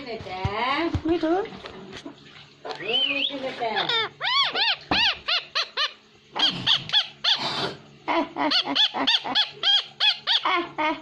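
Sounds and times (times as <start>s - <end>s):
parrot squawking: 3.7s - 10.7s.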